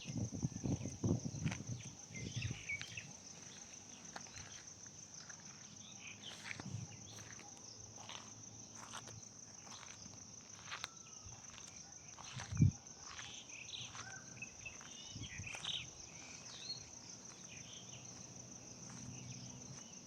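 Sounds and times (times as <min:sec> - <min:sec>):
faint bird chirps: 0:10.6 - 0:16.9.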